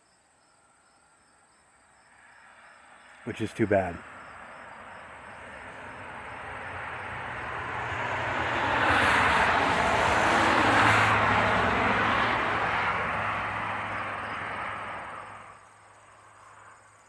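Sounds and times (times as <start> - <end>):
passing vehicle engine: 3.2 - 15.6.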